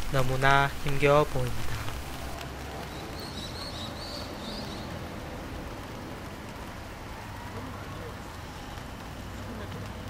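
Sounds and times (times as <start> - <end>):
light rain: 0.0 - 10.0
bird chirping: 2.9 - 4.9.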